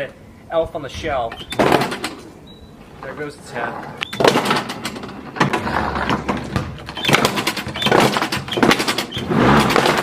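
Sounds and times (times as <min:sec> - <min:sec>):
lawnmower blade crunching plastic: 0:04.2 - 0:10.0.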